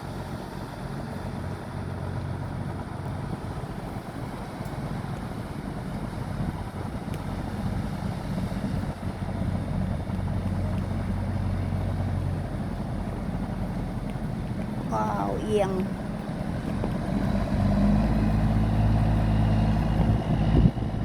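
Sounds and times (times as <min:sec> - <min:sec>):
boat engine humming: 0:00.0 - 0:21.0
wind buffeting microphone: 0:00.0 - 0:21.0.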